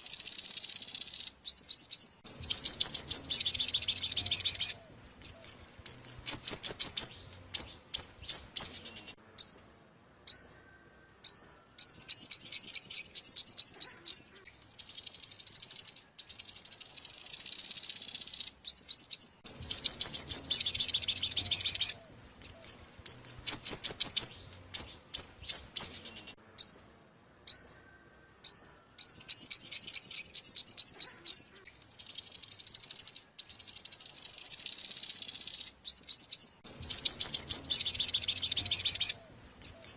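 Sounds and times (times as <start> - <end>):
sunbird chips and trills: 0.0 - 39.9.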